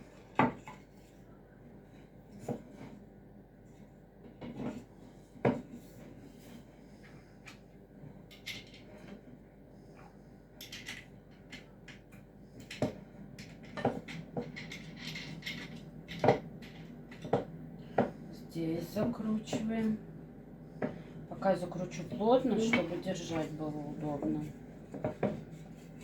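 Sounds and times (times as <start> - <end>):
parts knocking and clicking: 10.6 - 18.1.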